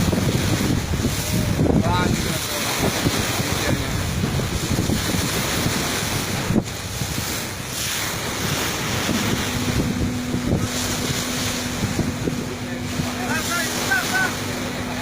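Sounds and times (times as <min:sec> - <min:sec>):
sea water rushing around boat: 0:00.0 - 0:15.0
wind buffeting microphone: 0:00.0 - 0:15.0
steady low hum: 0:03.9 - 0:15.0.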